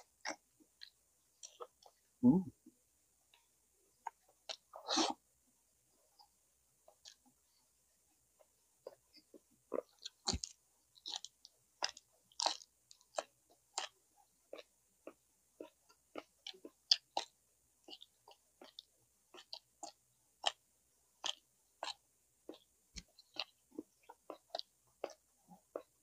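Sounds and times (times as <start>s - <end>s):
wet chewing smacks and clicks: 8.9s - 20.6s, 21.2s - 26.0s.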